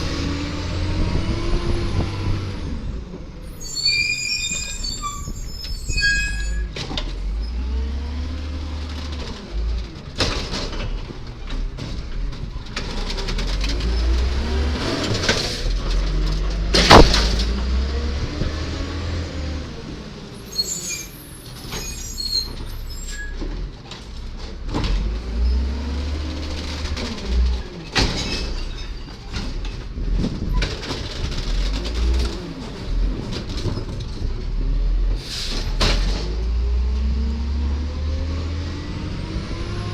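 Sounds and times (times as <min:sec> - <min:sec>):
brief high squeals: 0:03.6 - 0:06.7, 0:20.5 - 0:23.4
garbage truck engine revving: 0:12.9 - 0:20.3, 0:34.5 - 0:39.9
sharp bang: 0:16.8 - 0:17.5.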